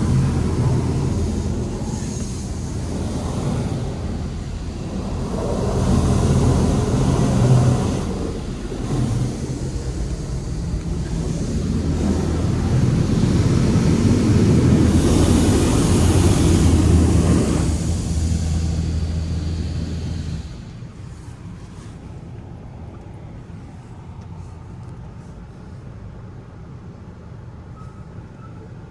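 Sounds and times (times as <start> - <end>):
hiss of spraying water: 0.0 - 22.0
low machine hum: 0.0 - 25.8.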